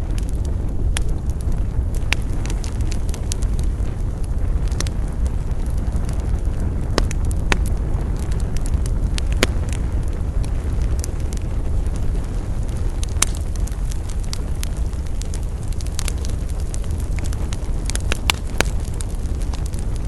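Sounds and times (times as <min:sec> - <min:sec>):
campfire crackling and popping: 0:00.0 - 0:20.0
loud fire snaps: 0:00.0 - 0:20.0
low fire rumble: 0:00.0 - 0:20.0.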